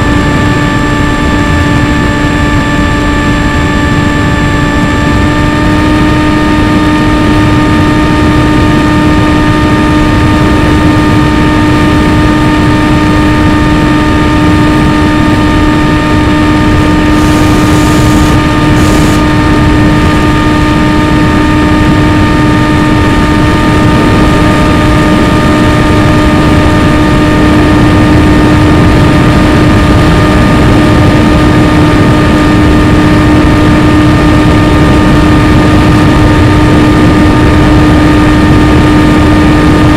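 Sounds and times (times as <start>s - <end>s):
aircraft motor and propeller: 0.0s - 39.9s.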